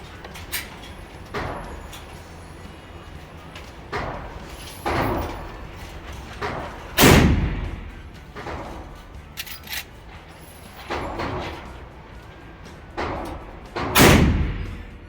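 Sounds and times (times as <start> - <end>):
gunshots: 7.0 - 8.8, 13.0 - 15.0.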